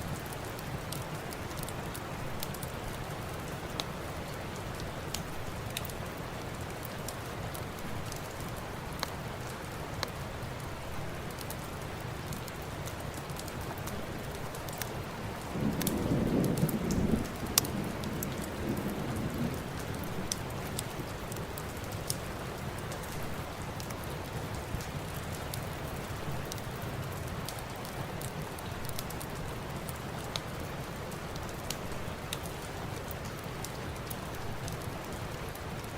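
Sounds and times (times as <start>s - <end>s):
steady rain: 0.0s - 35.9s
thunder rumble: 15.4s - 21.2s.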